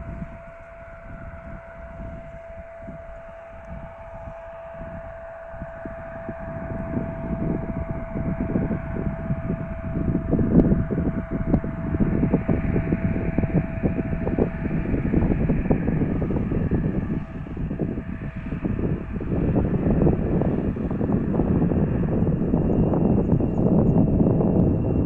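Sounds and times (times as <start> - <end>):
jet engines whining: 0.0 - 25.0
wind buffeting microphone: 0.0 - 25.0.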